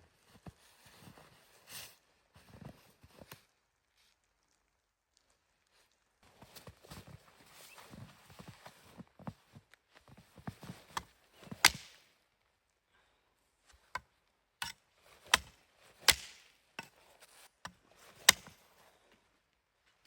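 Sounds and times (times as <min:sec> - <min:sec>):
blade chopping firewood: 0:10.9 - 0:12.1, 0:13.9 - 0:17.0, 0:17.7 - 0:18.6.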